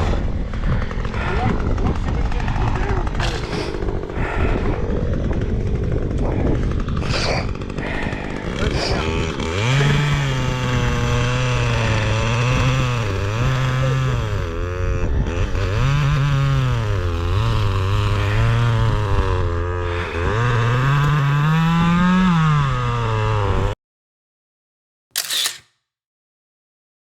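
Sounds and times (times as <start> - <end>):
dirt bike engine revving: 7.6 - 14.8.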